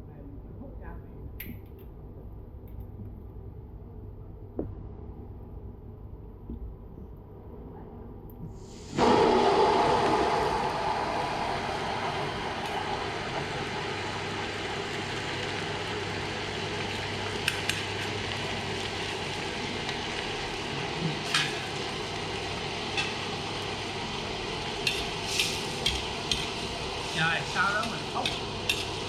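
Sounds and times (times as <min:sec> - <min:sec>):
food sizzling in a pan: 0:08.6 - 0:29.0.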